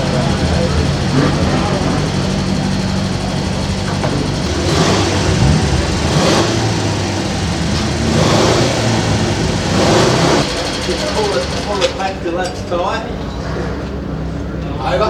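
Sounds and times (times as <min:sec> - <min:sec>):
rushes of noise: 0:00.0 - 0:10.8
vehicle engine idling: 0:00.0 - 0:15.0.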